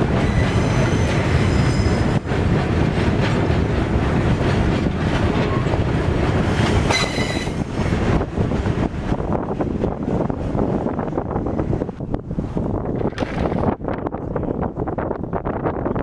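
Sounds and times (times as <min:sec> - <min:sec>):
train rumbling past: 0:00.0 - 0:15.9
wheels squealing: 0:06.5 - 0:07.6.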